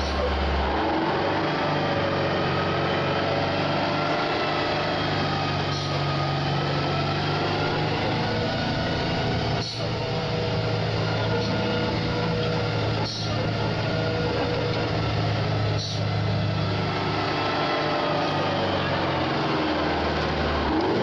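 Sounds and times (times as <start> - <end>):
truck diesel engine under load: 0.0 - 21.0.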